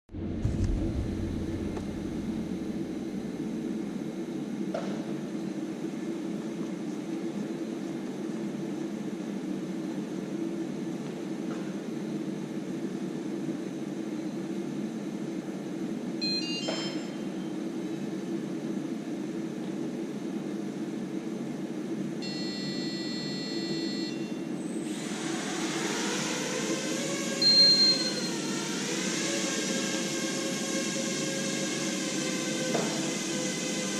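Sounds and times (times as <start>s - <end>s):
steady low hum: 0.1s - 33.9s
loud knock: 0.2s - 2.6s
quadcopter motors and propellers: 24.8s - 33.9s.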